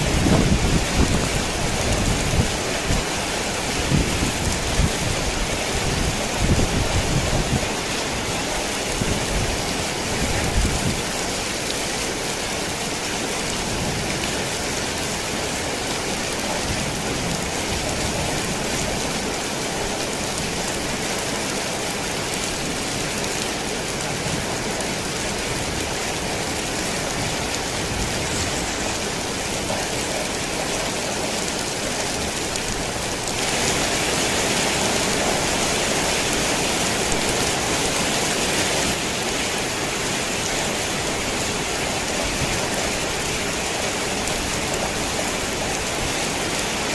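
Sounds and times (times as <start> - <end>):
heavy rain on a tin roof: 0.0 - 46.9.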